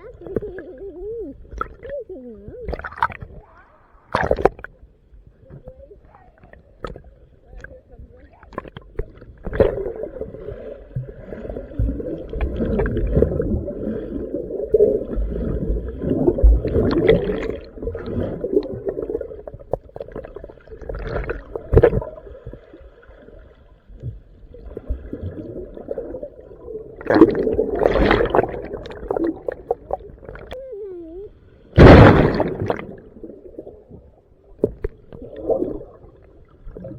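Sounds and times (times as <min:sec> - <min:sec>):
muffled surf sloshing and gurgling: 0:00.0 - 0:36.9.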